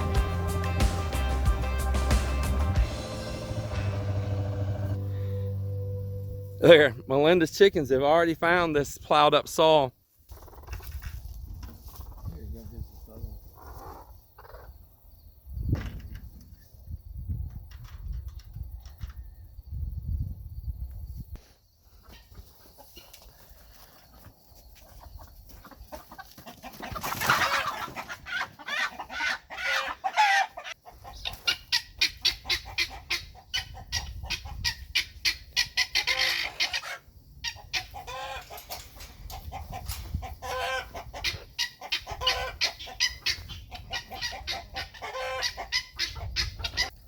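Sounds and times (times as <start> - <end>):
chickens clucking: 10.3 - 14.9, 21.8 - 47.0.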